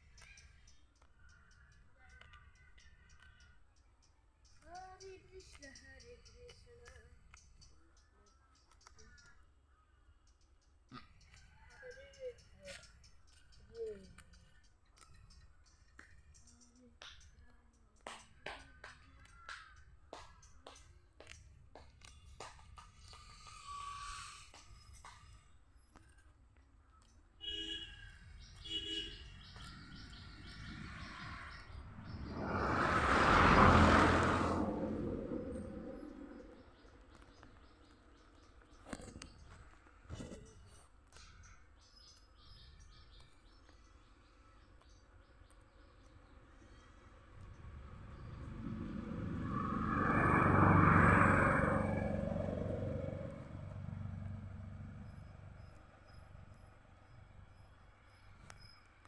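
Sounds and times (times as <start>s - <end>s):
small bird chirping: 23.0s - 32.7s, 34.5s - 51.2s
motor vehicle passing by: 28.2s - 38.4s, 46.2s - 58.9s
loud rush of noise: 31.7s - 36.6s, 47.4s - 53.9s.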